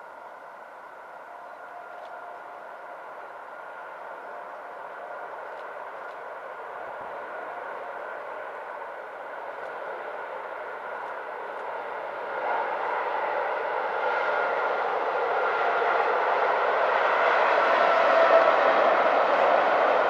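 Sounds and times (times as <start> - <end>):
faint steady hum: 0.0 - 14.2
train wheels rumbling on track: 0.0 - 20.0.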